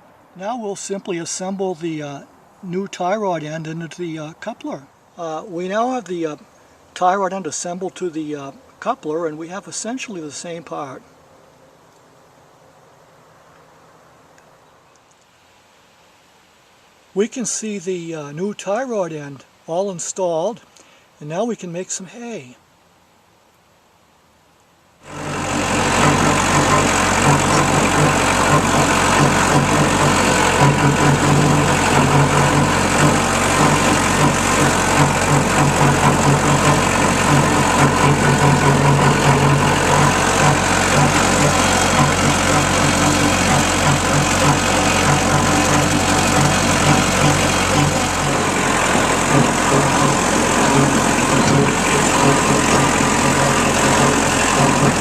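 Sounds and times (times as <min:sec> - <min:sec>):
diesel tractor engine running: 0:25.0 - 0:55.0.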